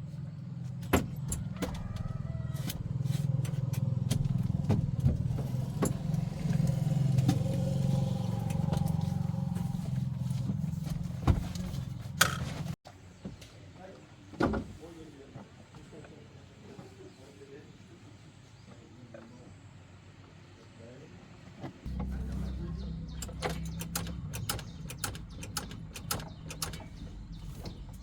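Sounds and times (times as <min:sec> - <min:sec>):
car engine idling: 0:00.0 - 0:12.8, 0:21.9 - 0:28.0
sharp clicks and knocks: 0:21.9 - 0:28.0.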